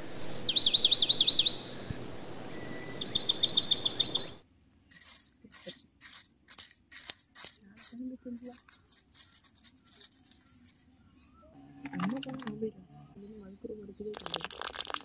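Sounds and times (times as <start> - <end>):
bird whistles and trill: 0.0 - 4.4
metal scoop scraping gravel: 4.9 - 11.0.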